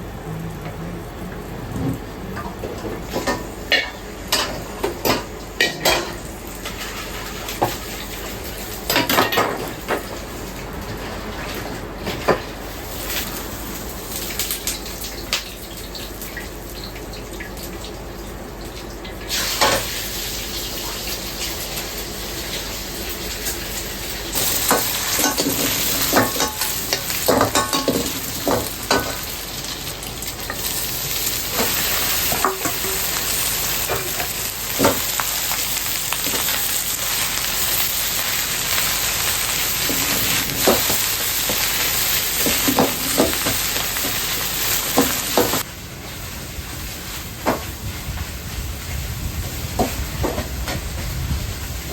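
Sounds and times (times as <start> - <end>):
wok clanking from stirring: 3.0 - 6.8, 24.4 - 29.4, 31.5 - 33.2
food sizzling in hot oil: 3.0 - 51.9.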